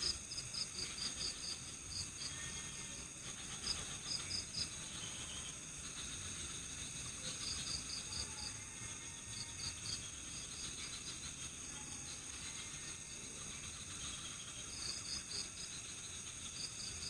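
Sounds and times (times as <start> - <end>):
cricket chirps: 0.0 - 17.0.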